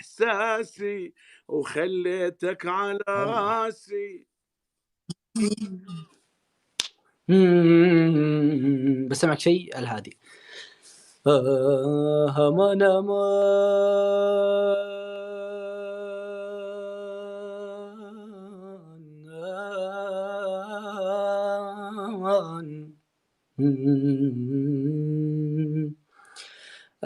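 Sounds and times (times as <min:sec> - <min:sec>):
man singing unaccompanied: 0:00.0 - 0:04.3, 0:07.2 - 0:09.4, 0:11.2 - 0:23.0, 0:23.6 - 0:26.0.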